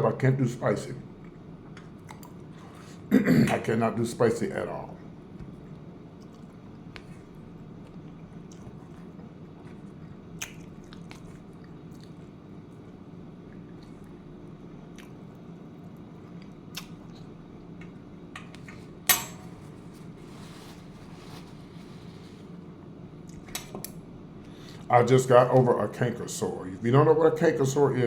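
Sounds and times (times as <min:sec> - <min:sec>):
low background hum: 0:00.0 - 0:28.0
person chewing food: 0:01.2 - 0:03.0, 0:05.3 - 0:17.4.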